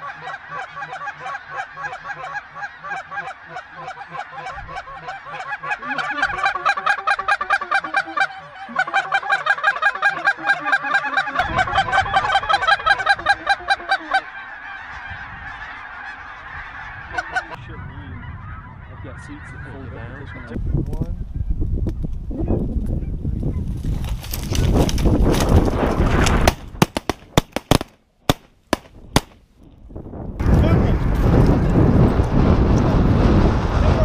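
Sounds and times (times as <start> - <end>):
snow geese calling: 0.0 - 20.6
wind rumbling on microphone: 4.4 - 5.4, 11.4 - 27.6, 28.8 - 34.0.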